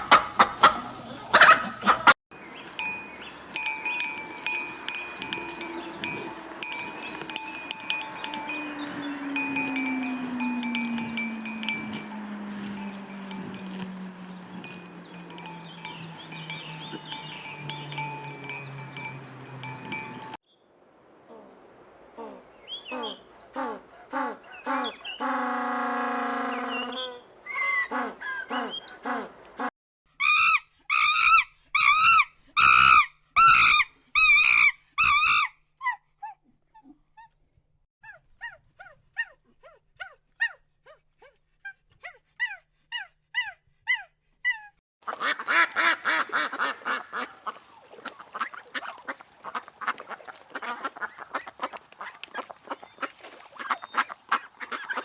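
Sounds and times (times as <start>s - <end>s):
dense chorus of animal calls: 21.3s - 29.7s
long pitched animal call: 21.3s - 29.7s
loud honking calls: 22.1s - 29.7s
faint chirps: 26.3s - 29.5s.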